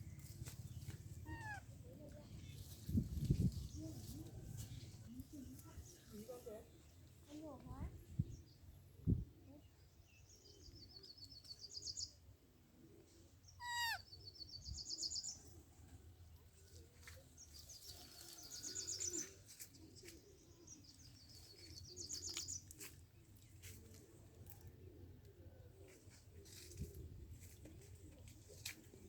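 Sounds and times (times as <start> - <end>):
bird trilling: 1.2 - 1.7, 13.6 - 14.1.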